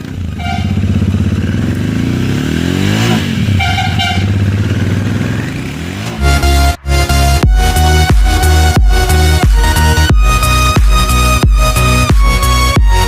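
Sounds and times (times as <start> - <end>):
motorcycle riding past: 0.0 - 6.8
music: 6.2 - 13.0.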